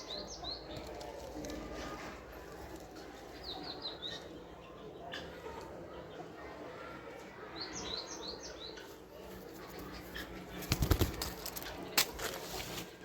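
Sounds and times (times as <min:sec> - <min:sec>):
wings flapping: 0:10.2 - 0:12.8.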